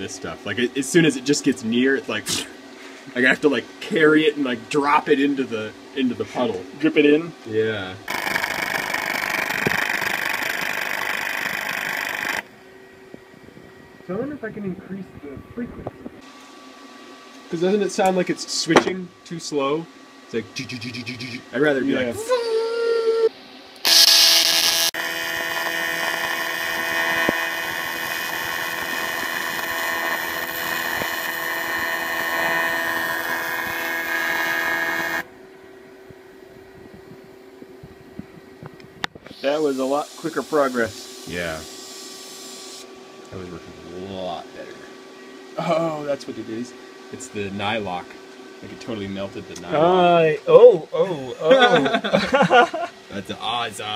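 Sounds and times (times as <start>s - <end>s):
welding arc buzzing: 8.0s - 12.6s, 23.8s - 35.3s, 39.2s - 42.9s
faint hum: 12.4s - 41.7s, 42.9s - 53.9s.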